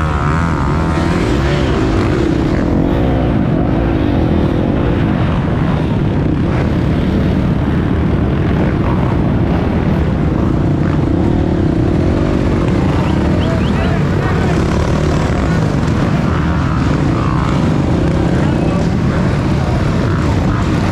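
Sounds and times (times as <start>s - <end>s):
motorcycle engine revving: 0.0s - 20.9s
wind and ground noise: 0.0s - 20.9s.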